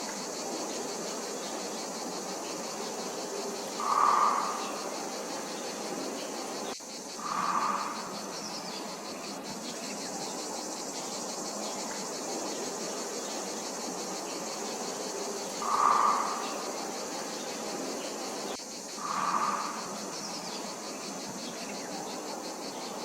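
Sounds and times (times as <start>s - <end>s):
high-pitched insect chirring: 3.7s - 5.4s, 6.7s - 9.4s, 15.1s - 17.2s, 18.6s - 21.9s.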